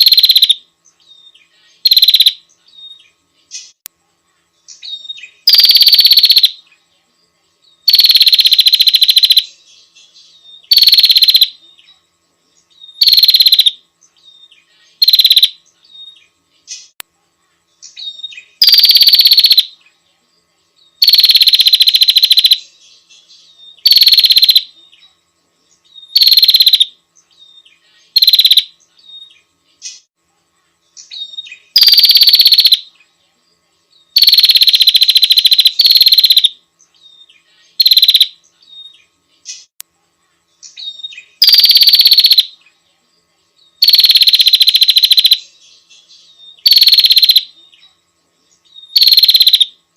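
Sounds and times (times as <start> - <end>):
bird calling loudly: 26.1 - 26.9, 46.6 - 47.5, 49.0 - 49.7.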